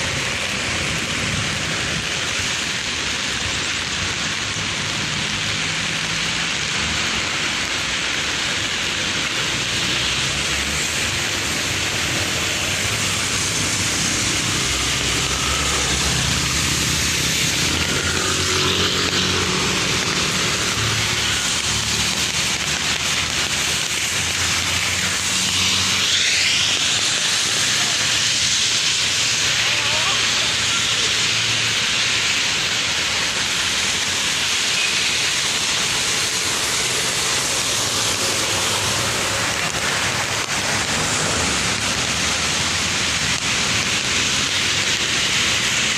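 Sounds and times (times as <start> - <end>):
heavy rain: 0.0 - 45.9
vehicles on wet street: 0.0 - 45.9.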